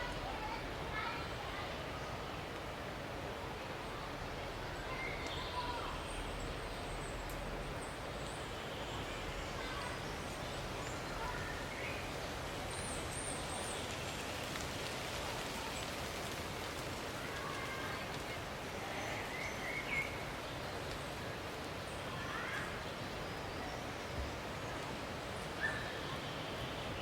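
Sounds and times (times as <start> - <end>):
outdoor background noise: 0.0 - 27.0
faint bird calls: 25.5 - 27.0.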